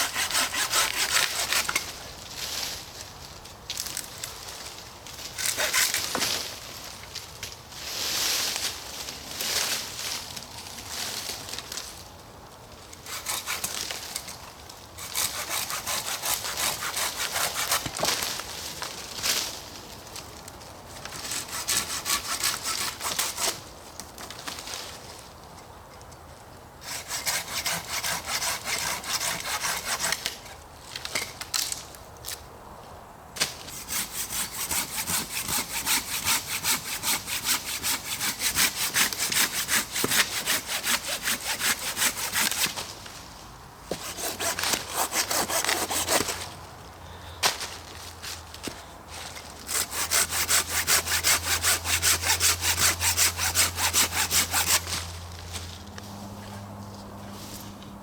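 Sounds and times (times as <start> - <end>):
hand saw cutting wood: 0.0 - 1.9, 5.4 - 6.3, 13.0 - 14.4, 15.0 - 18.3, 21.1 - 23.6, 26.8 - 30.6, 33.4 - 42.9, 43.9 - 46.6, 49.2 - 55.2.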